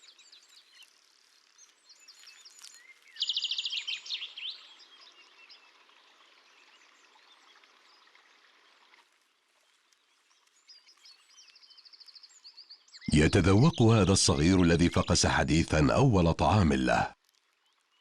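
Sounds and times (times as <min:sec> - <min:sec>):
faint outdoor hiss: 0:13.1 - 0:17.1.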